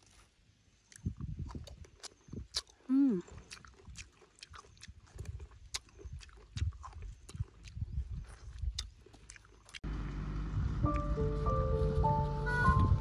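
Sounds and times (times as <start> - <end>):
person chewing fruit: 0.0 - 11.1
music: 10.8 - 13.0.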